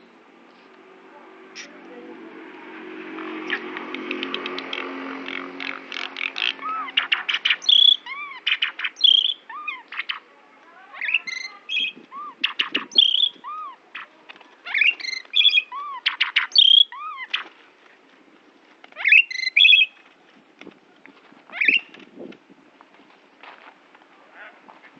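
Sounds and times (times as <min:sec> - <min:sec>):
starling singing: 0:03.1 - 0:17.5, 0:19.0 - 0:20.0, 0:21.5 - 0:21.9.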